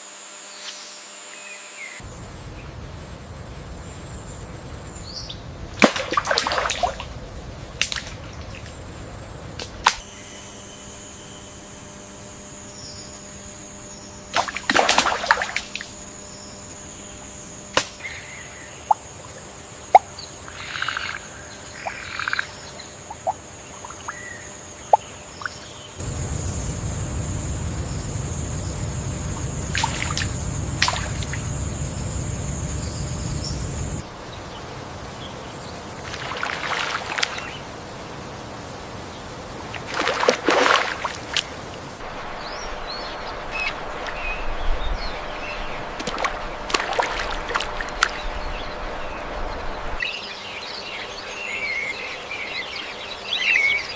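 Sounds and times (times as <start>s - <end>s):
high insect drone: 0.0s - 53.9s
rushing water: 5.4s - 10.0s, 26.0s - 38.6s, 39.4s - 50.1s.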